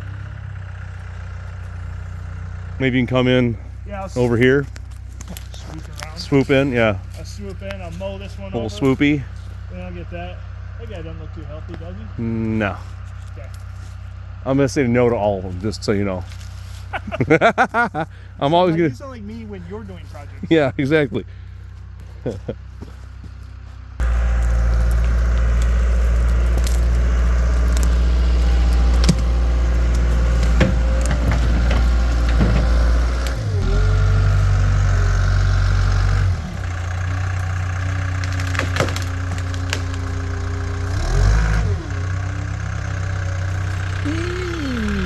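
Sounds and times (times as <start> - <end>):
diesel engine running hard: 0.0 - 45.0
wood cracking and snapping: 4.6 - 6.2, 24.0 - 33.7, 36.3 - 41.9.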